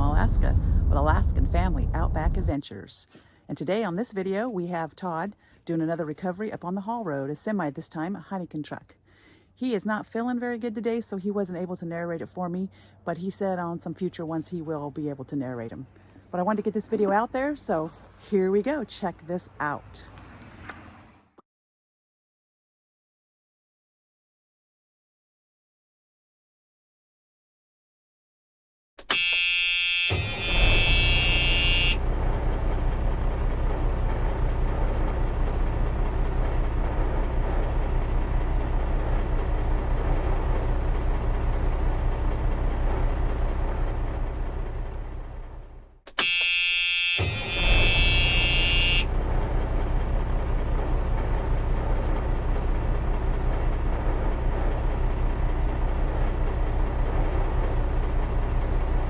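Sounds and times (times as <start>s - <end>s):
diesel truck engine running: 0.0s - 2.6s, 30.1s - 46.0s, 47.2s - 59.0s
shrill buzzing tone: 29.0s - 32.1s, 46.2s - 49.2s.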